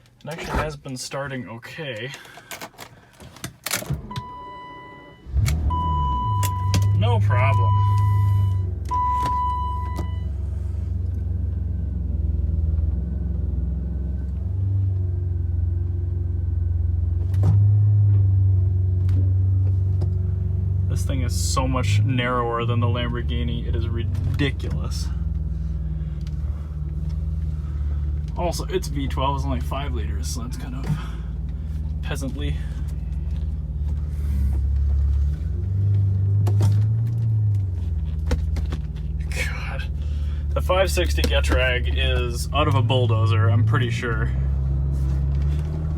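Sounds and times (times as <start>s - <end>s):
car engine low drone: 2.0s - 45.9s.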